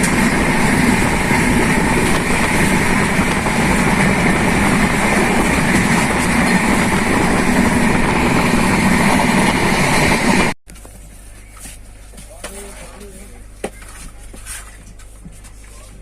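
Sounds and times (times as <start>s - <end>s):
train rumbling and rushing: 0.0s - 10.6s.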